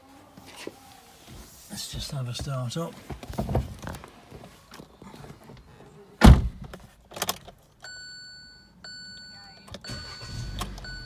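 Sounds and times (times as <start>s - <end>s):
small knocks and rustles: 2.4s - 5.9s
car door shutting: 6.2s - 7.4s, 10.2s - 11.0s.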